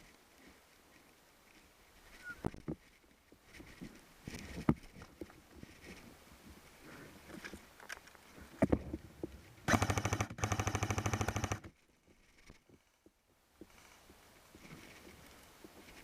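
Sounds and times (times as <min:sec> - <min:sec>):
clicks and rustling: 0:07.2 - 0:09.7
airsoft gun firing bursts: 0:09.7 - 0:11.7.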